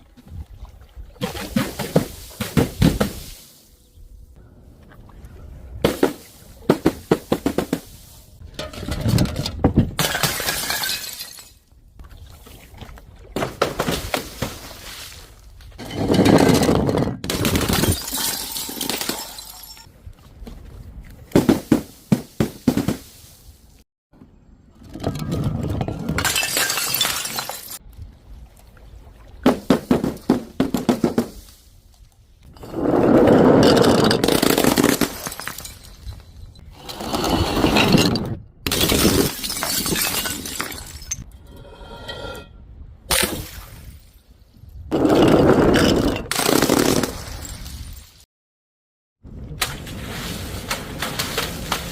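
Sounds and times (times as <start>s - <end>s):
glass bottles shattering: 10.0s - 11.6s, 15.8s - 19.9s, 26.1s - 27.8s, 33.6s - 36.6s, 37.7s - 41.3s.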